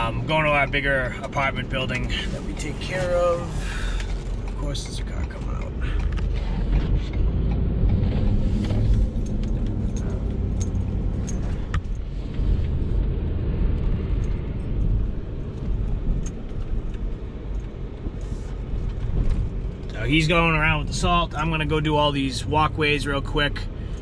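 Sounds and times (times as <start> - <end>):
truck engine and road rumble: 0.0 - 24.0
light clicks and rattles: 1.1 - 8.0, 8.6 - 12.8.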